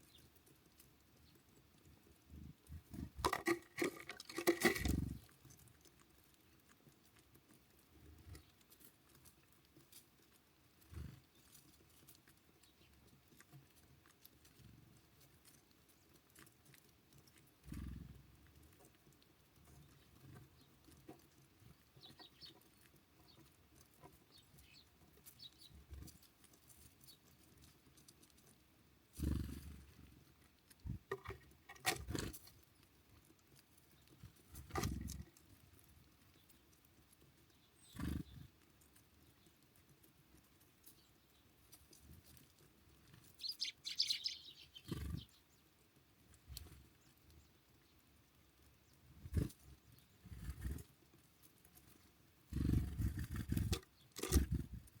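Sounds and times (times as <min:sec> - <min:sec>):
birds knocking and rustling: 0:00.0 - 0:45.4, 0:48.6 - 0:55.0
faint high bird chirps: 0:43.4 - 0:45.7.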